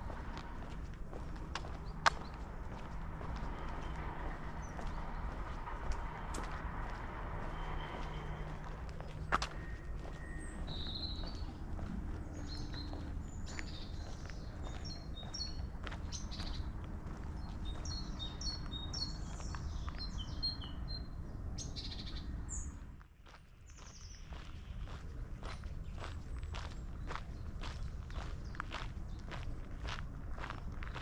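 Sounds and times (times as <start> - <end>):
songbirds chirping and singing: 0.0 - 31.0
steady low rumble: 0.0 - 31.0.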